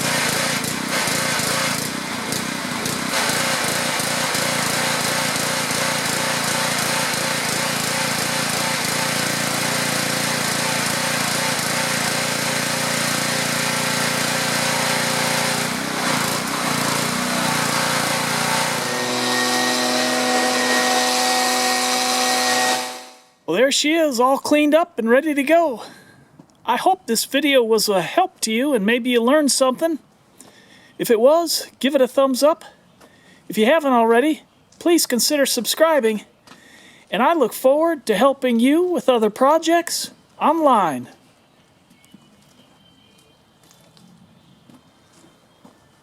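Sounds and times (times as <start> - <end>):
pressure washer spraying water: 0.0 - 23.2
steady tones: 17.4 - 23.4.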